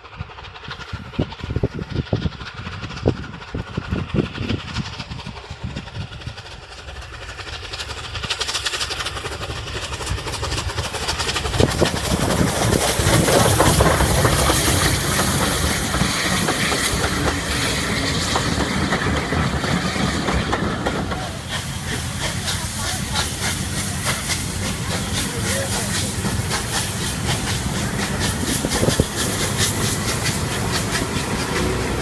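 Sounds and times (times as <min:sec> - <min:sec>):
steam hiss: 0:00.0 - 0:32.0
steam train running: 0:00.0 - 0:32.0.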